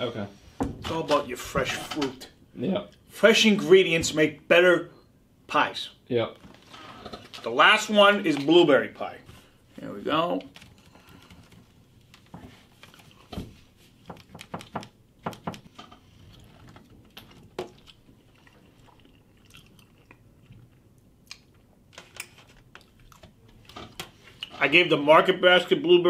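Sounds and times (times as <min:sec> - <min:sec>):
person chewing: 0:16.0 - 0:21.9, 0:22.6 - 0:24.5.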